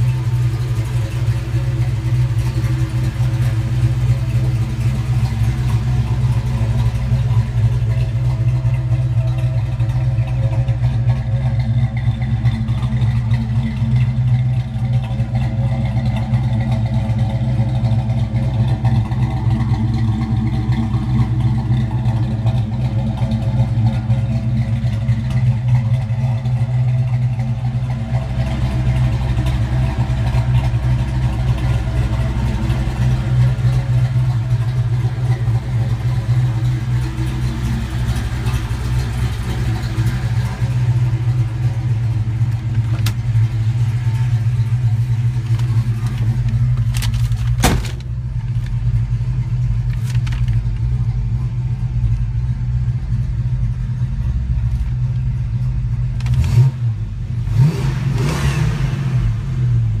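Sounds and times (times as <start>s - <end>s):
car engine idling: 0.0s - 60.0s
engine revving: 56.2s - 60.0s.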